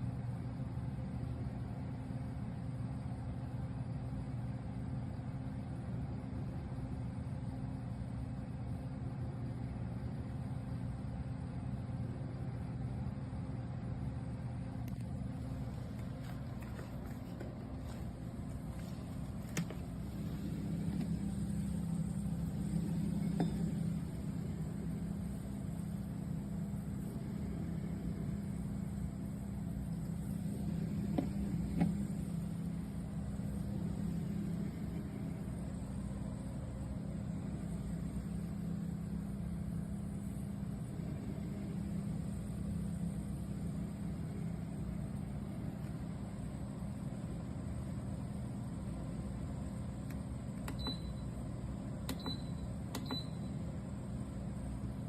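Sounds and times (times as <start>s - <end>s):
car fridge compressor humming: 0.0s - 55.0s
clicks: 15.9s - 20.0s.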